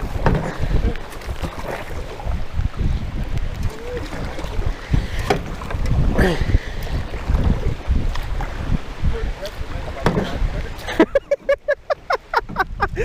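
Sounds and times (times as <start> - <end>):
paddle strokes on metal boat: 0.0 - 13.0
wind buffeting microphone: 0.0 - 13.0.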